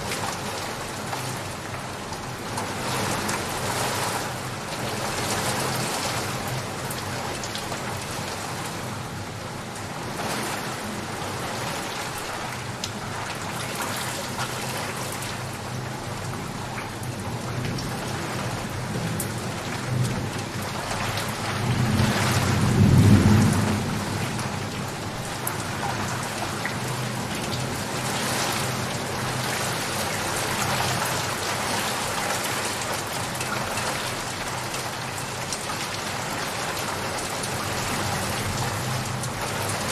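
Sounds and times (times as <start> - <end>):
steady rain falling: 0.0 - 39.9
low roll of thunder: 21.4 - 26.3.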